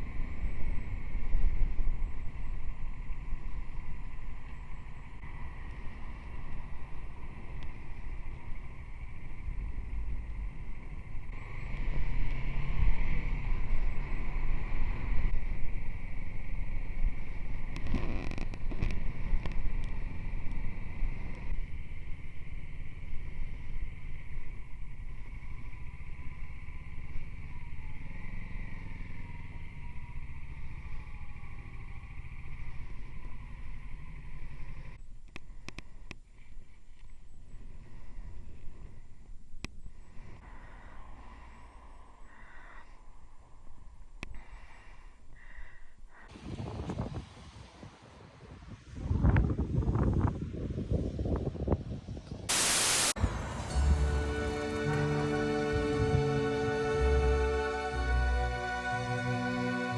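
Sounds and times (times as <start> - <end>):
wind buffeting microphone: 46.3 - 52.5.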